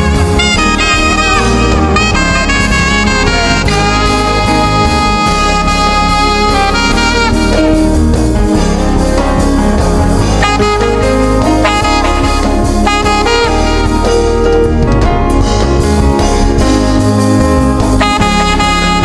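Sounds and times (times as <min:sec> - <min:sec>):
live gospel band: 0:00.0 - 0:19.0
saxophone melody: 0:00.0 - 0:19.0.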